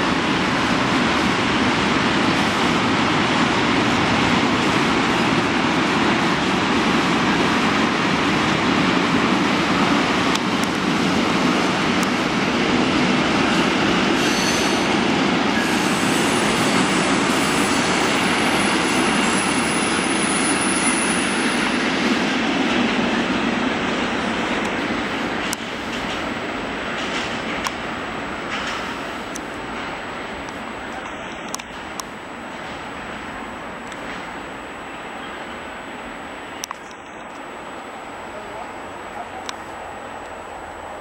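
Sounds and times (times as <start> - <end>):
freight train rolling past: 0.0 - 41.0
train wheel squeals: 14.1 - 21.8.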